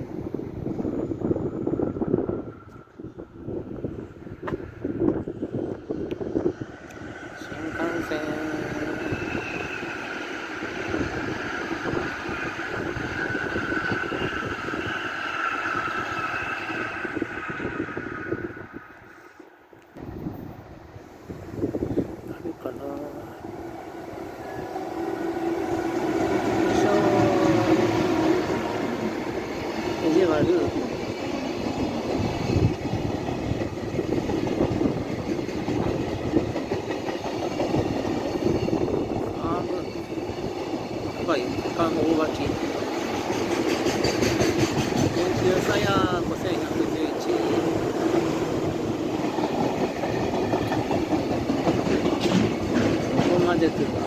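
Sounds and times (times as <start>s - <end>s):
high-speed train passing: 0.0s - 54.0s
short knocks of train wheels: 43.0s - 45.4s, 49.3s - 53.6s.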